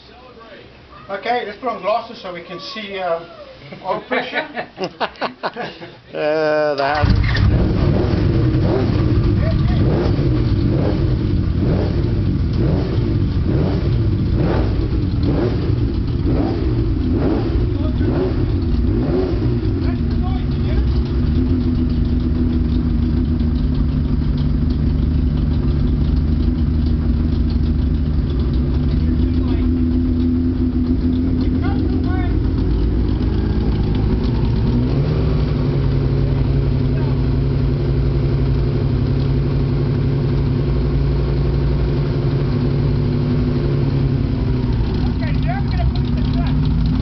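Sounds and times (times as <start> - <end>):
light rapid ticking: 13.3 - 37.5, 43.9 - 47.0
motorcycle engine idling: 19.5 - 41.1, 43.2 - 47.0.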